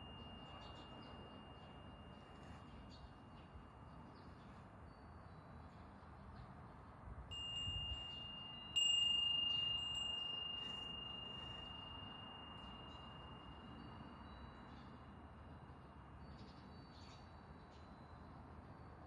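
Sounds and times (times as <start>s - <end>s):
metal wind bell ringing: 0.0s - 4.1s, 7.3s - 15.9s.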